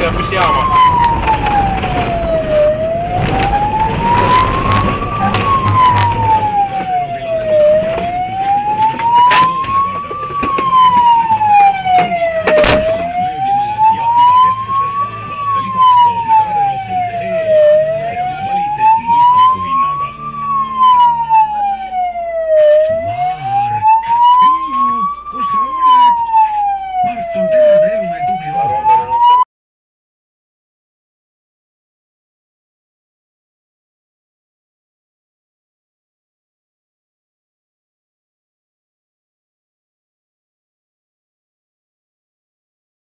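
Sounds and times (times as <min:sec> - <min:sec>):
siren wailing: 0:00.0 - 0:29.5.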